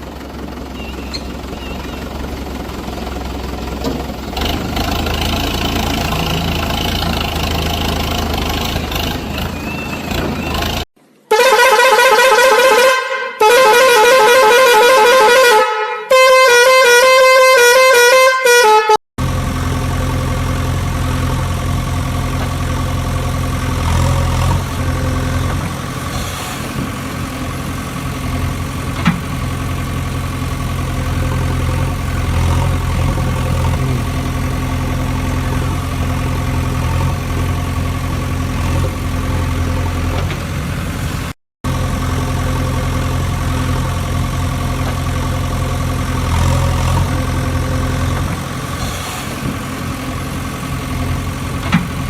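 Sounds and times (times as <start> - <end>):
engine idling hum: 0.0 - 10.9, 19.2 - 52.0
warbling musical vehicle horn: 9.0 - 19.0.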